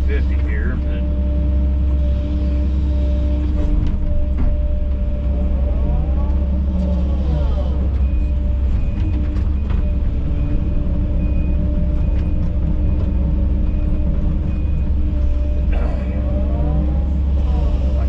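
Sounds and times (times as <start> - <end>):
diesel engine running: 0.0 - 18.0
backup alarm beeping: 7.7 - 17.2.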